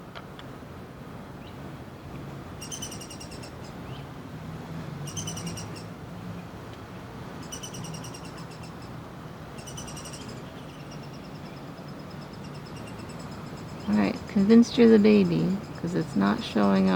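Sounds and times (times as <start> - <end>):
woodpecker calling: 2.6 - 4.0, 5.0 - 5.9, 7.4 - 16.9.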